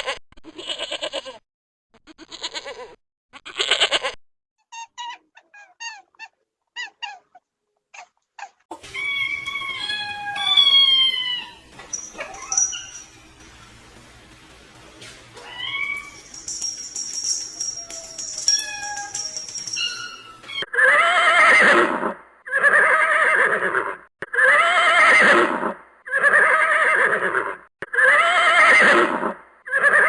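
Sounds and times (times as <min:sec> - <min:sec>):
goat bleating: 0:00.1 - 0:01.4, 0:02.0 - 0:04.2
short squeaky animal cries: 0:08.8 - 0:13.1
high-pitched falling cries: 0:08.8 - 0:13.4, 0:15.4 - 0:21.3.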